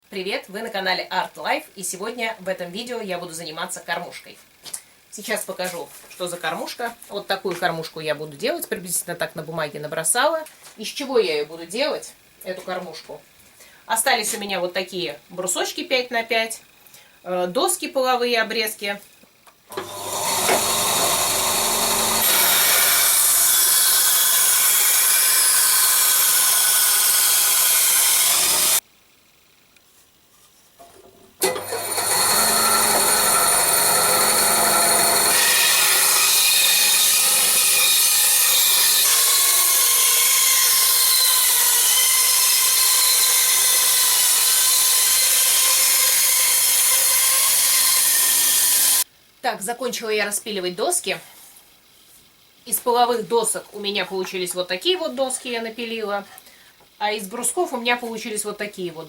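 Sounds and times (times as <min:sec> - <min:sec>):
power saw cutting wood: 0:19.7 - 0:28.8, 0:31.4 - 0:49.1.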